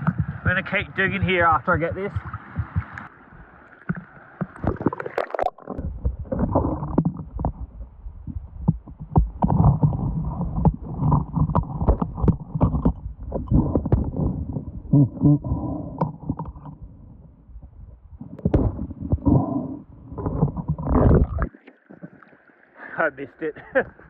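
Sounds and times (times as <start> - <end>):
water splashing: 0.0 - 15.4, 20.1 - 23.5
underwater gurgling rumble: 0.0 - 22.7.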